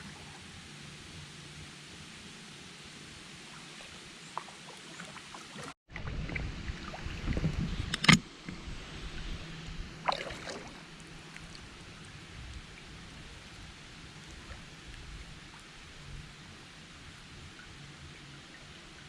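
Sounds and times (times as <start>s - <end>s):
water dripping off paddle: 10.0s - 12.8s.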